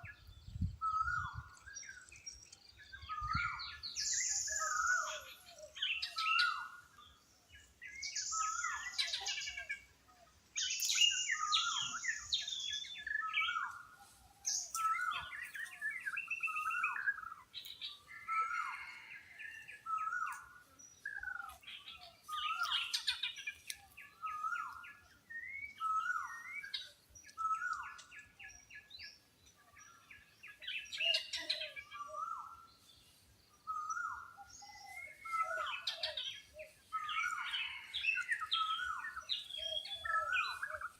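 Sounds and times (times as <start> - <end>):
birds calling: 0.9 - 40.9.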